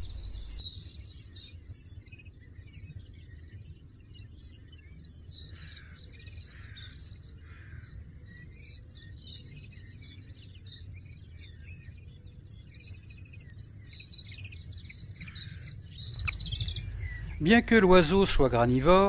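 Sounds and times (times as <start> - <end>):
low steady rumble: 0.0 - 0.6, 16.2 - 19.0
finches twittering: 0.0 - 19.0.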